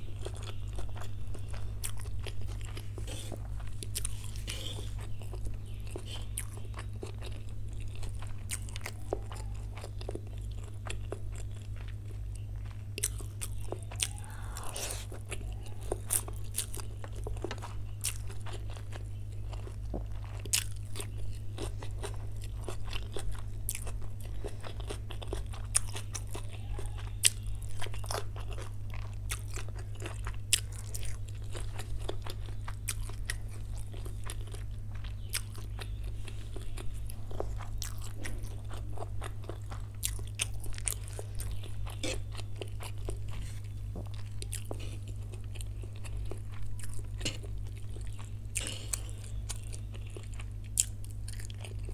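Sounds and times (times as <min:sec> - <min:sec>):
person chewing and crunching food: 0:00.0 - 0:51.9
steady low hum: 0:00.0 - 0:51.9.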